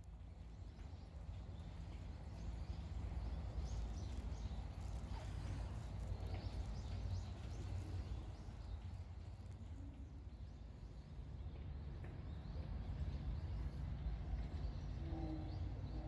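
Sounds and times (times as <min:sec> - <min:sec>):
small birds chirping: 0:00.3 - 0:11.0.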